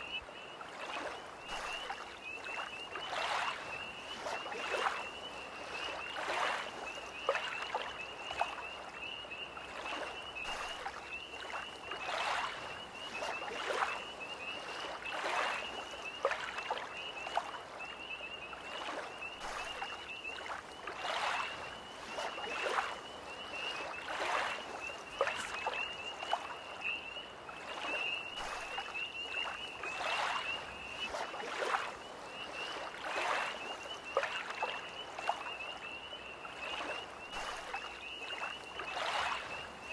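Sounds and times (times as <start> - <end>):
lake waves lapping against shore: 0.0 - 39.9
tree frogs trilling: 0.0 - 39.9.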